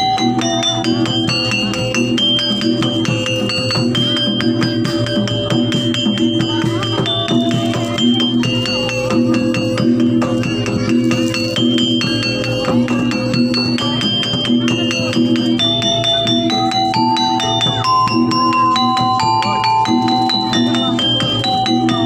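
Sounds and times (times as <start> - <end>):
drums: 0.0 - 22.0
gamelan music: 0.0 - 22.0.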